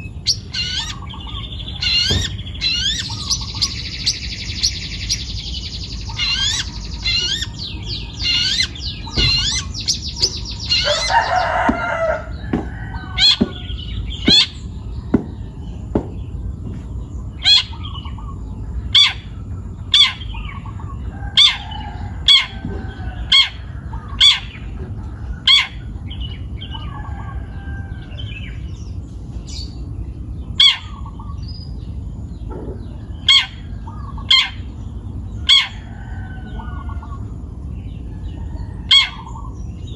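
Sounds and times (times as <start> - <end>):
bird warbling and chattering: 0.0 - 14.6.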